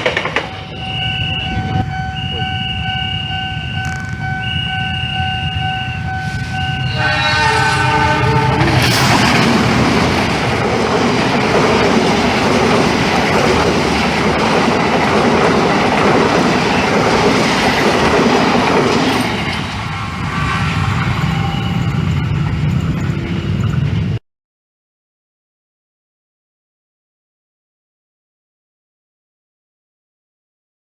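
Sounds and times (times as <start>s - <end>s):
passenger train passing: 0.0s - 24.2s
wheels clattering over rail joints: 1.4s - 24.0s.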